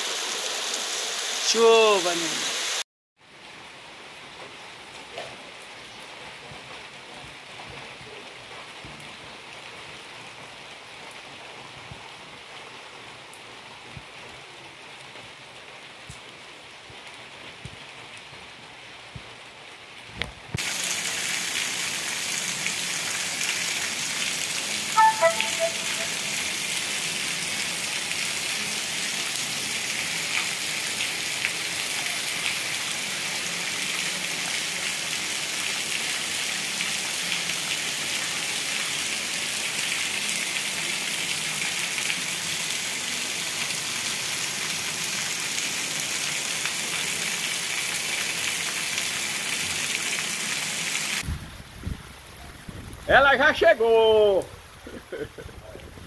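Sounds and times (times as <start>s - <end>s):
heavy rain on street and roofs: 0.0s - 56.0s
short descending notes: 25.0s - 26.4s.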